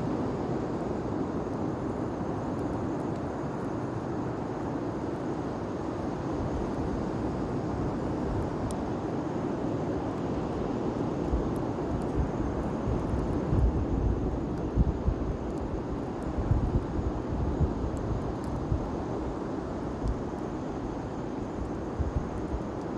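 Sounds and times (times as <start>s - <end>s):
faint fire crackles: 0.0s - 22.9s
bonfire flames rushing: 0.7s - 22.9s.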